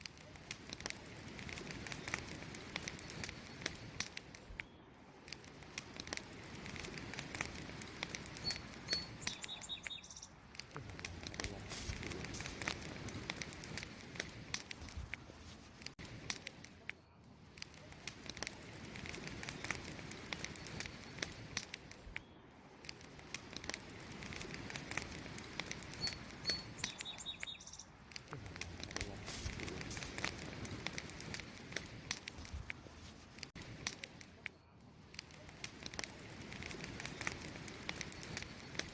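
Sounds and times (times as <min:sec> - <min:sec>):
campfire crackling and popping: 0:00.0 - 0:38.9
short high bird chirps: 0:08.4 - 0:10.4, 0:26.0 - 0:28.0.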